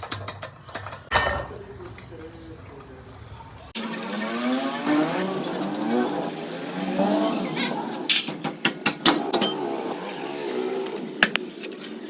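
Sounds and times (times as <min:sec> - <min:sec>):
metal tools clinking: 0:03.8 - 0:06.4, 0:08.0 - 0:08.4, 0:09.3 - 0:09.9, 0:10.7 - 0:12.0.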